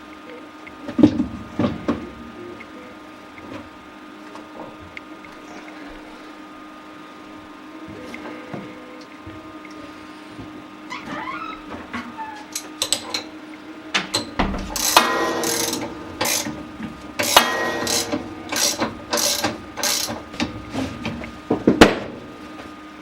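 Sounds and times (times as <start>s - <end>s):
plastic ratchet clicking and rattling: 14.7s - 16.6s, 17.2s - 20.2s.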